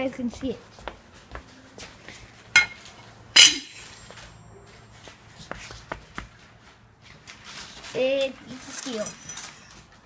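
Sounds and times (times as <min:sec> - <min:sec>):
metallic clanks of heavy steel: 0:03.4 - 0:04.1.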